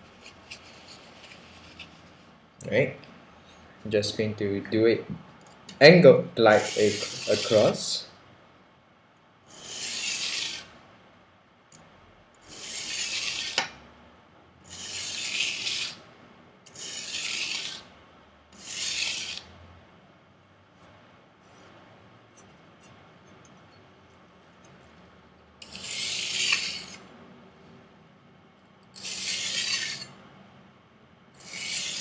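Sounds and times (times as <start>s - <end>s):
knife rasping on sandpaper: 0.1s - 2.4s, 6.5s - 8.0s, 9.5s - 10.7s, 12.4s - 13.6s, 14.7s - 16.0s, 16.7s - 17.9s, 18.6s - 19.5s, 25.6s - 27.0s, 29.0s - 30.1s, 31.4s - 32.0s.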